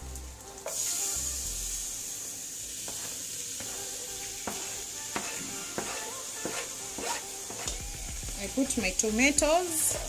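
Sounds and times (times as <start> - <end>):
fish sizzling in oil: 0.0 - 10.0
wooden spoon knocking and scraping: 4.4 - 7.8.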